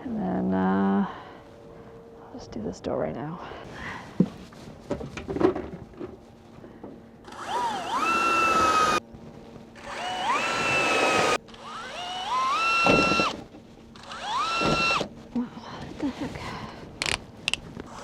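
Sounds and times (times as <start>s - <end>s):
power drill motor whine: 7.2s - 9.0s, 9.8s - 13.4s, 14.0s - 15.1s.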